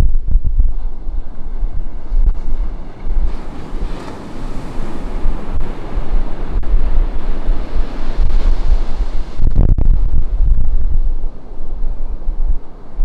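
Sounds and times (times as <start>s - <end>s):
wind buffeting microphone: 0.0s - 13.0s
ocean surf breaking on beach: 2.0s - 9.6s.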